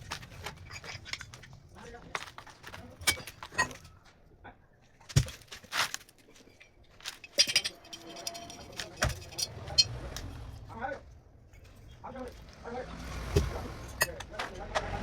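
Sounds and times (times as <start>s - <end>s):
metal parts clinking: 6.3s - 9.9s
jangling metallic rattle: 7.1s - 10.0s.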